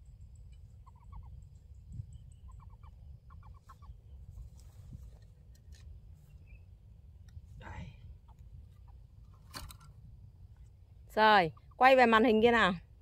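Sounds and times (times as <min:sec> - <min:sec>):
bird calls: 0:00.6 - 0:04.4.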